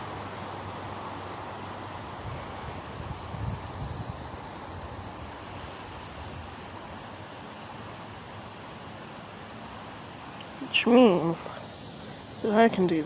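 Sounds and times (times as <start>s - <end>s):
wind buffeting microphone: 1.8s - 6.8s.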